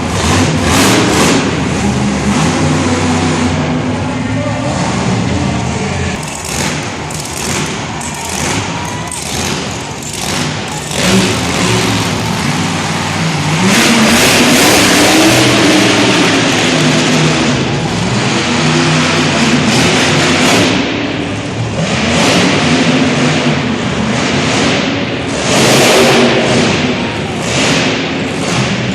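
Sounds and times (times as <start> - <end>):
truck engine revving: 0.0 - 28.9.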